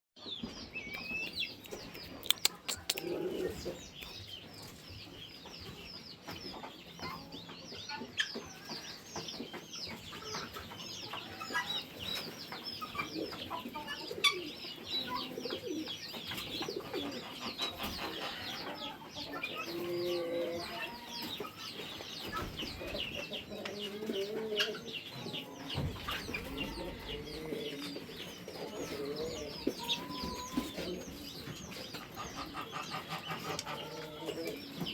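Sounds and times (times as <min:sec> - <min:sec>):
high peeps of poultry: 0:00.2 - 0:34.9
low clucking calls: 0:01.0 - 0:04.1, 0:31.7 - 0:34.9
sharp clicks: 0:01.6 - 0:03.2.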